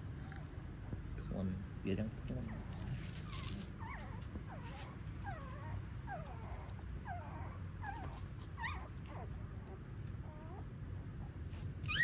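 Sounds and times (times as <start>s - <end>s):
steady low hum: 0.0s - 12.0s
puppies whimpering: 2.4s - 10.6s, 11.3s - 12.0s.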